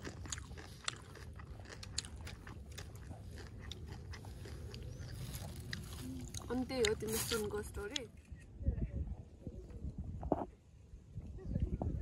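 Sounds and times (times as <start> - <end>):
person chewing crunchy snack: 0.0 - 7.5.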